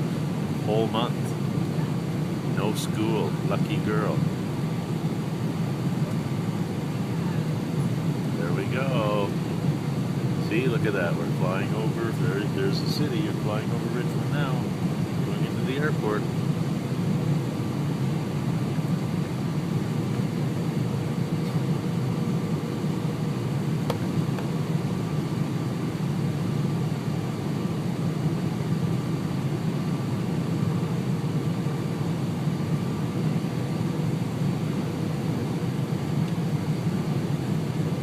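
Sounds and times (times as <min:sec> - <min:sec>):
airliner cabin rumble: 0:00.0 - 0:38.0
faint steady hums: 0:00.0 - 0:38.0.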